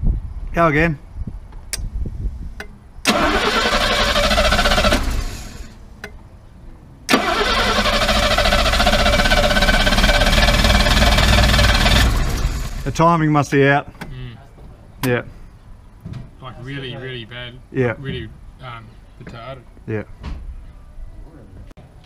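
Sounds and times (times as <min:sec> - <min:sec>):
car engine starting and running: 0:03.0 - 0:05.9, 0:07.1 - 0:13.0.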